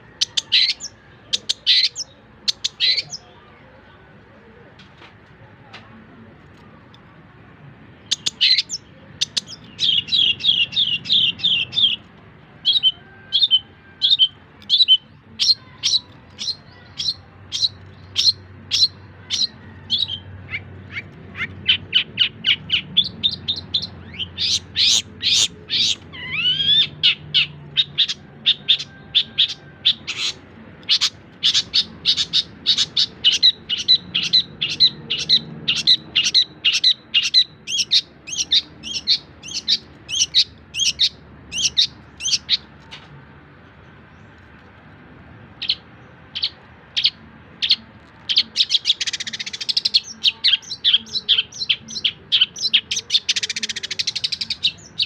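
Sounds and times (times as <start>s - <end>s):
shrike singing: 0.0s - 3.8s, 7.6s - 43.0s, 45.4s - 55.0s.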